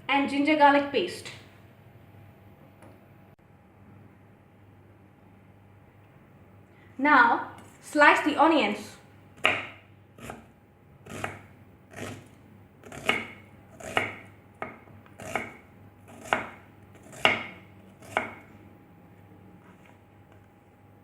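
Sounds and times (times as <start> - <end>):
knife slicing onions: 9.4 - 18.5.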